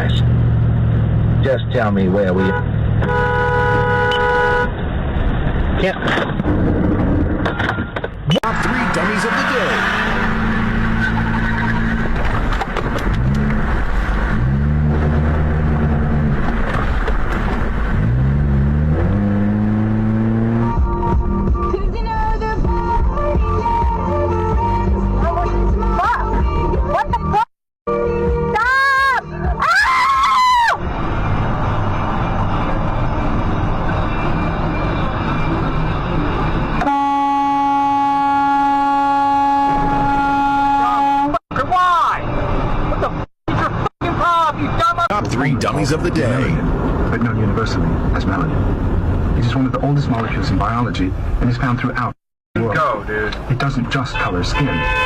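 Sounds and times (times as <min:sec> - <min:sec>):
road noise: 0:00.0 - 0:55.0
vehicle horn long blast: 0:02.4 - 0:04.7, 0:36.8 - 0:41.4, 0:54.2 - 0:55.0
car engine accelerating: 0:08.3 - 0:22.6
music: 0:20.7 - 0:29.8.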